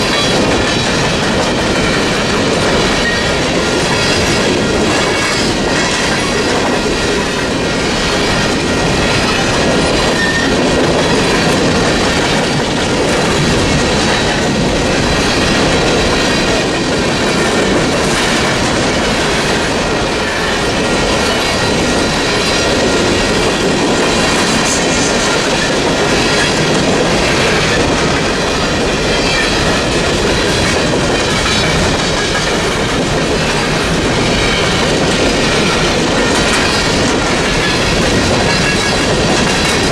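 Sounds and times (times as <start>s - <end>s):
train wheels clattering over joints: 0.0s - 39.9s
faint high wheel squeal: 10.2s - 10.6s.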